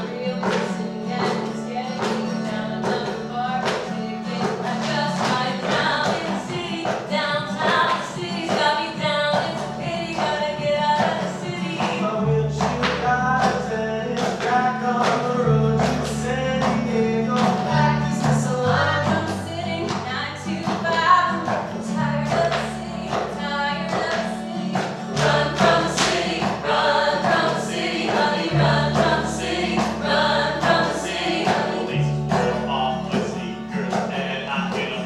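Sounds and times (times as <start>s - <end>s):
percussive beat: 0.0s - 35.0s
voices singing together: 0.0s - 35.0s
sustained bass notes: 25.2s - 35.0s.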